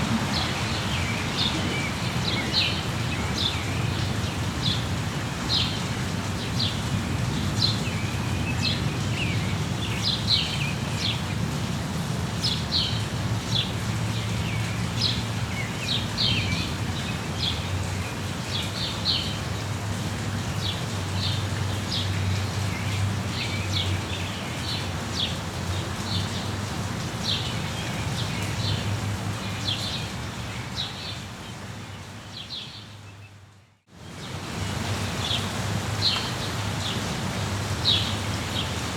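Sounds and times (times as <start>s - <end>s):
songbirds chirping: 0.0s - 11.5s, 12.3s - 38.9s
steady rain: 0.0s - 38.9s.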